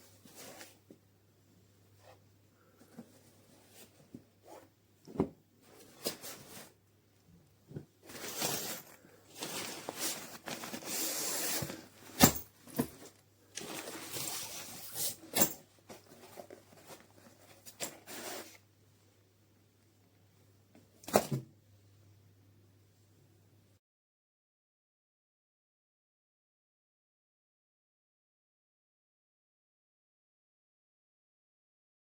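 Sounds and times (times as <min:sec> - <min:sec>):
backpack fabric rustling: 0:07.7 - 0:18.6.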